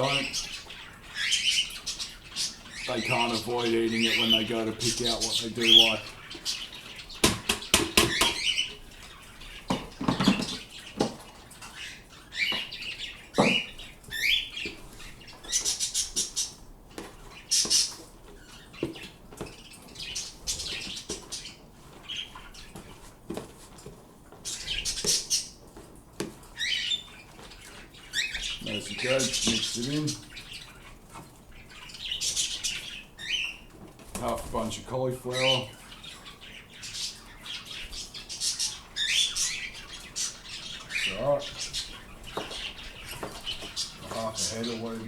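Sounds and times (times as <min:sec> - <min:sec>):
birds squawking and chirping: 0:00.0 - 0:45.0.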